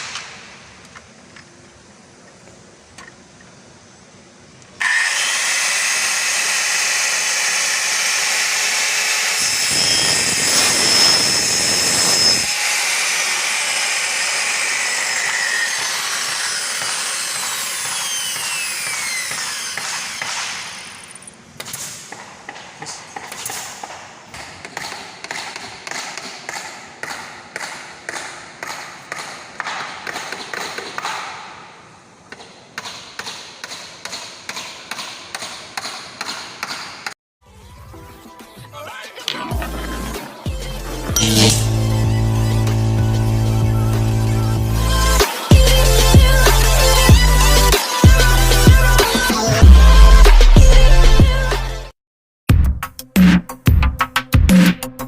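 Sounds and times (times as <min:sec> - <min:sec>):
power tool motor running: 0:04.8 - 0:20.2, 0:39.6 - 0:48.5.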